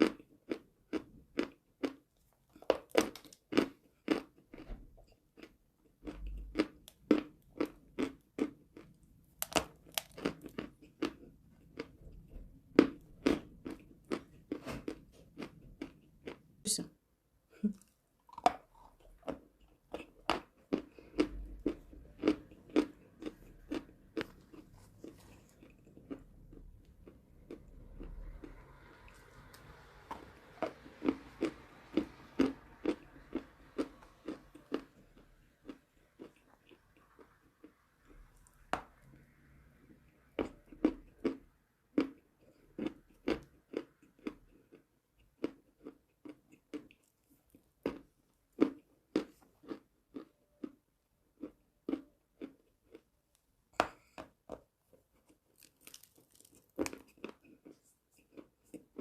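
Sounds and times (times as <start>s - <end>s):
chalk being chewed: 18.8s - 38.6s, 55.2s - 59.0s.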